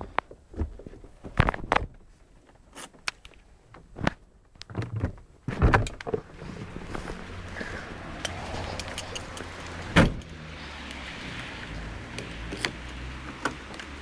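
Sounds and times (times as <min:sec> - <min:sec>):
sharp clicks and thunks: 0:00.0 - 0:02.1, 0:03.0 - 0:14.0
car engine starting and idling: 0:06.1 - 0:14.0.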